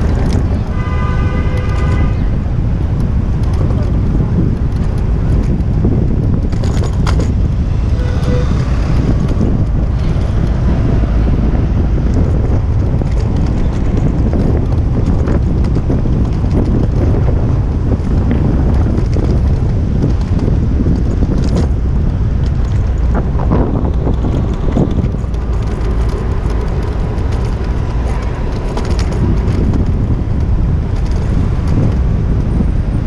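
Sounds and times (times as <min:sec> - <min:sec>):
city street traffic: 0:00.0 - 0:33.0
wind buffeting microphone: 0:00.0 - 0:33.0.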